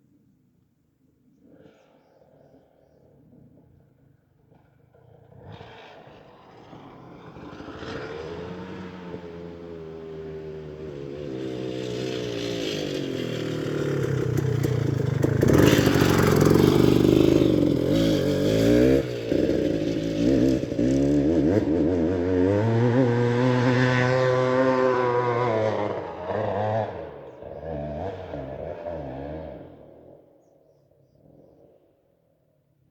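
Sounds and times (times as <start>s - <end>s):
off-road engine revving hard: 5.5s - 30.2s.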